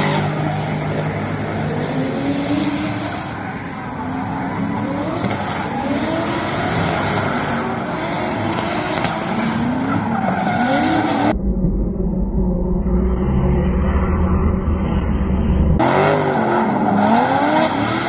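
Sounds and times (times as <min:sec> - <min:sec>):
car engine revving: 0:00.0 - 0:18.0
muffled low rumble: 0:11.3 - 0:15.8.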